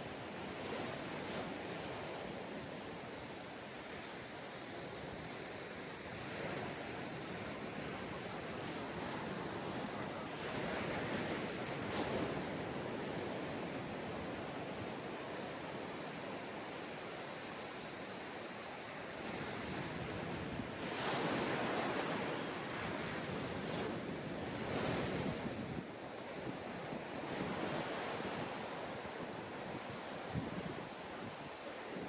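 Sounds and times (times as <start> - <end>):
ocean waves breaking on beach: 0.0 - 32.0
wind on microphone: 19.2 - 32.0.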